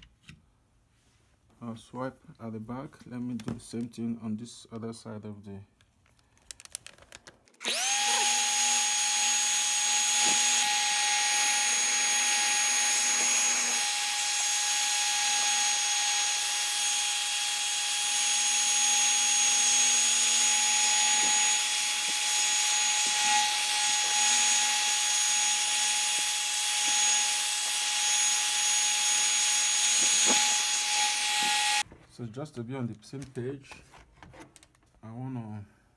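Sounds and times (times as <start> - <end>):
hair dryer whining: 7.6 - 17.2, 21.2 - 31.8.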